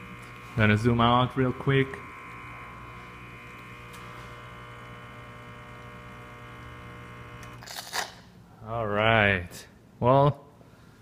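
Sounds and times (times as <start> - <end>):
espresso machine pump buzzing: 0.0 - 8.3.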